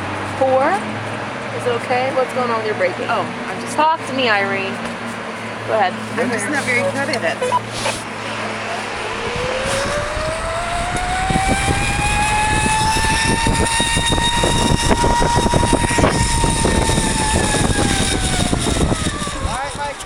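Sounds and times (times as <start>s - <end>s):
wind buffeting microphone: 0.0s - 20.0s
zipline pulleys whining on cable: 5.2s - 20.0s.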